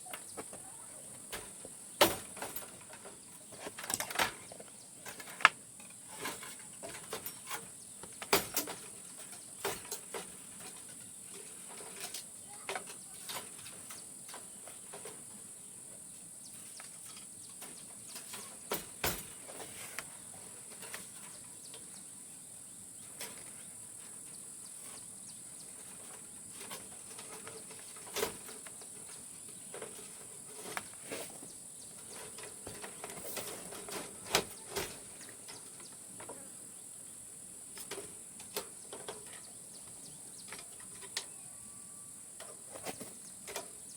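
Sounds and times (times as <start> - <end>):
insects droning: 0.0 - 43.9.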